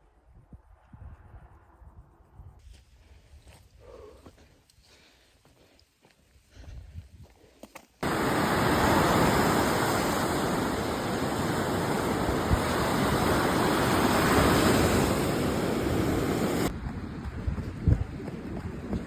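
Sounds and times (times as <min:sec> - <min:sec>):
water rushing: 0:08.0 - 0:16.7.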